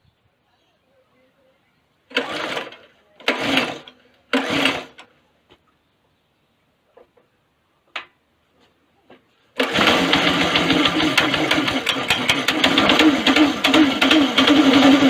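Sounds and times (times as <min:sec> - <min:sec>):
go-kart engine running: 0:02.1 - 0:05.0, 0:09.6 - 0:15.0.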